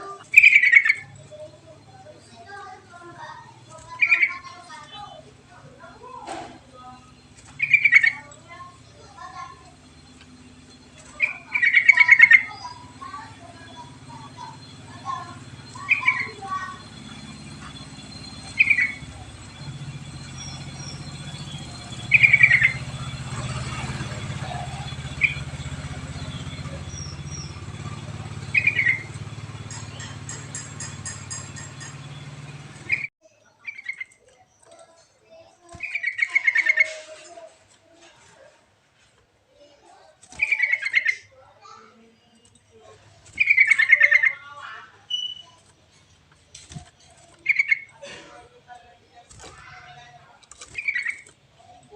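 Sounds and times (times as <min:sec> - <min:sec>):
steady low hum: 0:00.0 - 0:33.1
bulbul calling: 0:00.0 - 0:34.2, 0:35.7 - 0:37.2, 0:40.2 - 0:41.3, 0:42.9 - 0:51.9
bird bubbling song: 0:00.0 - 0:35.0, 0:35.7 - 0:37.0, 0:43.3 - 0:46.0, 0:46.8 - 0:48.1, 0:49.1 - 0:51.9.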